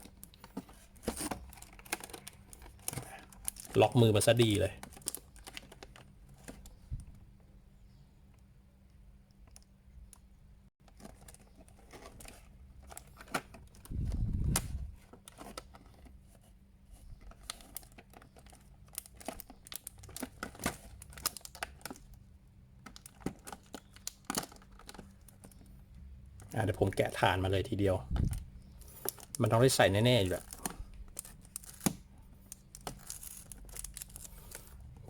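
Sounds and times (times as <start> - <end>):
plastic packaging crinkling: 0.0 - 6.1, 17.3 - 22.1, 28.1 - 34.8.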